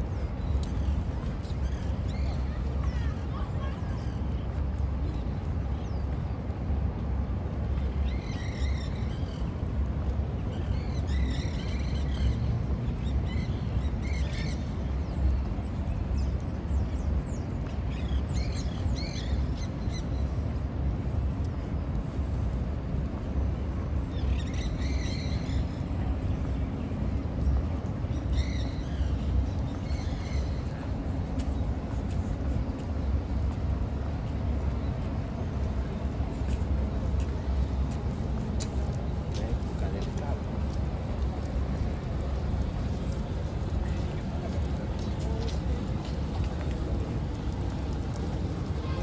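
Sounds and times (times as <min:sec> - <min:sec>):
distant city: 0:00.0 - 0:49.0
wind: 0:00.0 - 0:49.0.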